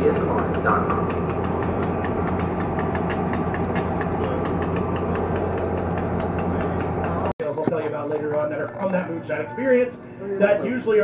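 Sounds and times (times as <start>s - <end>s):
train engine humming: 0.0s - 7.3s
rapid regular ticking: 0.0s - 7.4s.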